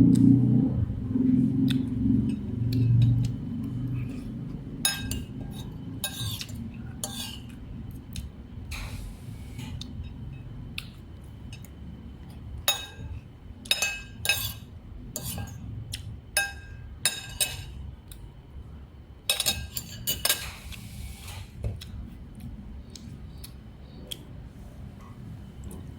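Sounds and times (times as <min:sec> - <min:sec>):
low background rumble: 0:00.0 - 0:19.8
dishes and cutlery clinking: 0:04.8 - 0:07.6, 0:12.6 - 0:13.1, 0:13.7 - 0:14.6, 0:15.2 - 0:15.6, 0:16.4 - 0:17.8, 0:19.3 - 0:20.6.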